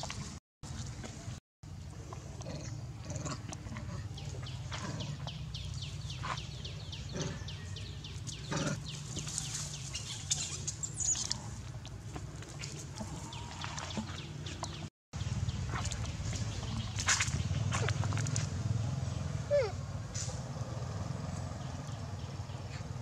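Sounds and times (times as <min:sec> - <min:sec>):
bird chirping: 0:03.9 - 0:11.5.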